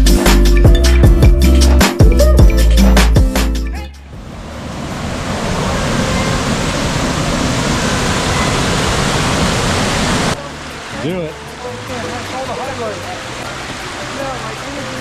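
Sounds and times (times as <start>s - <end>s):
electronic music with heavy beat: 0.0s - 4.0s
waterfall rushing: 4.0s - 15.0s.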